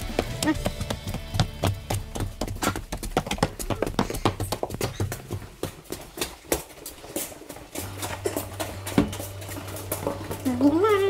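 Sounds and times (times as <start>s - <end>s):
footsteps on concrete: 0.0s - 11.0s.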